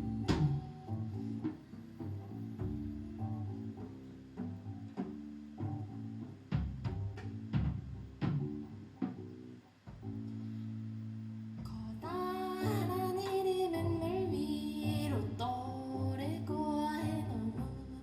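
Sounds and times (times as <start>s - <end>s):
guitar chords: 0.0s - 18.0s
person singing: 11.7s - 18.0s.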